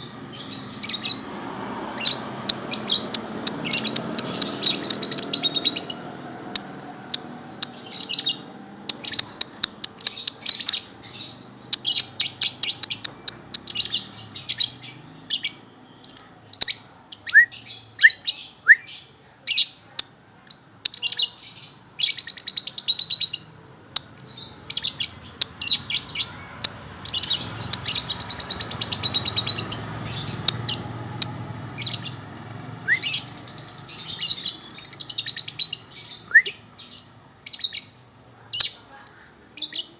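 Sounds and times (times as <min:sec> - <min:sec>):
songbird chirps and trills: 0:00.0 - 0:39.9
rising bird whistles: 0:32.8 - 0:33.3, 0:36.2 - 0:36.6.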